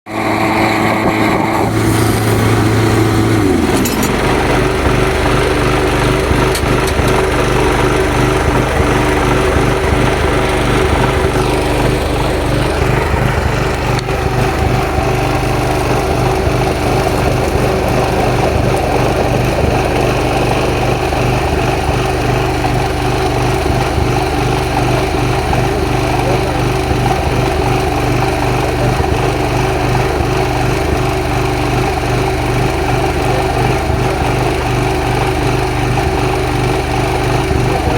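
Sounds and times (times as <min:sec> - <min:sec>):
small engine running: 0:00.1 - 0:37.9.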